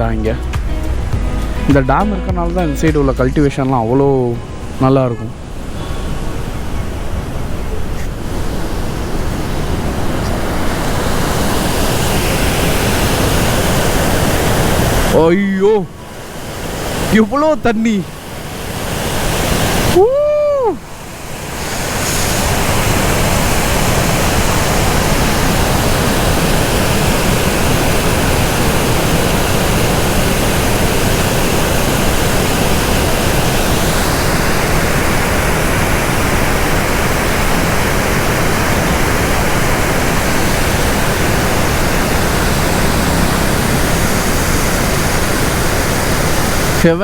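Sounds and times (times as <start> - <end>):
water rushing through dam sluices: 3.5 - 47.0
short rising and falling tone: 39.8 - 46.6.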